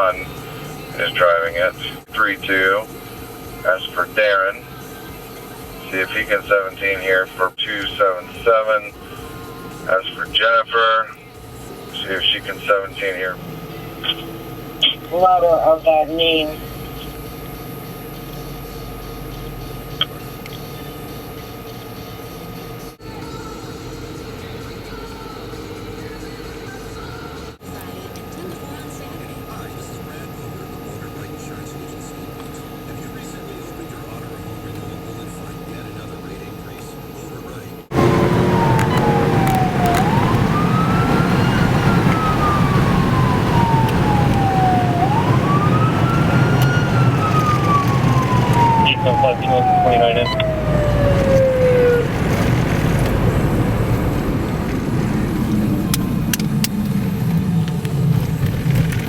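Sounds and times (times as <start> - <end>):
car engine and road noise: 0.0 - 59.0
police siren wailing: 11.7 - 17.8, 27.3 - 59.0.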